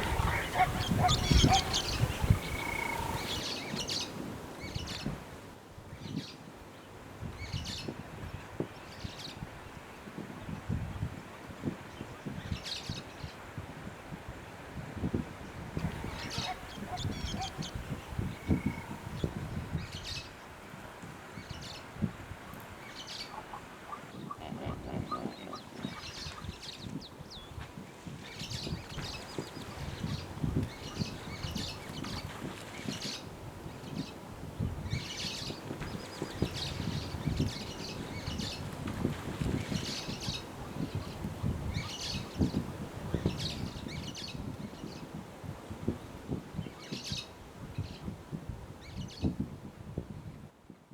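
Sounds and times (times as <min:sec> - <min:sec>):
small birds chirping: 0:00.0 - 0:05.1, 0:15.8 - 0:20.3, 0:22.5 - 0:27.6.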